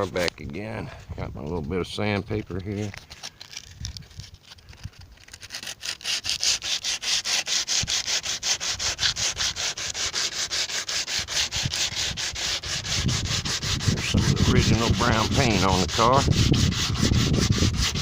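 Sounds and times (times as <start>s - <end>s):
sandpaper rubbing on metal: 5.2s - 18.0s.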